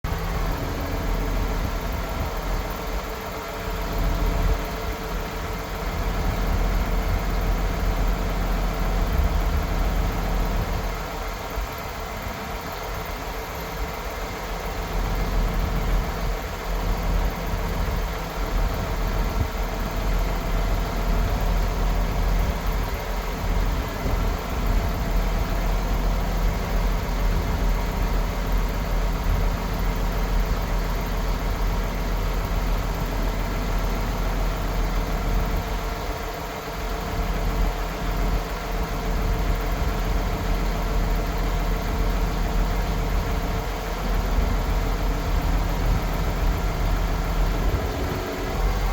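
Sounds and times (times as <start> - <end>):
truck diesel engine idling: 0.0 - 48.9.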